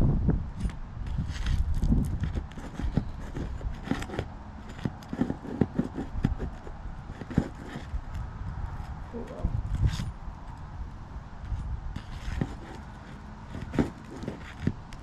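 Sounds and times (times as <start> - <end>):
metal tool scraping shingles: 0.6 - 8.0, 11.6 - 15.0.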